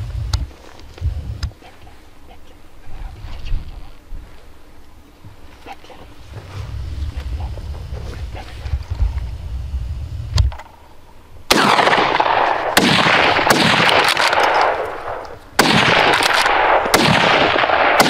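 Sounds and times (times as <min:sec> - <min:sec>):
gunshots with rolling echo: 0:11.5 - 0:18.0.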